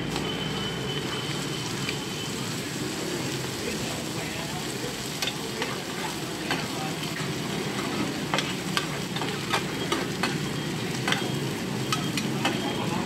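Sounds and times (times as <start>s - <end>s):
food sizzling on a griddle: 0.0s - 13.0s
metal utensils clacking on a pan: 5.1s - 12.9s.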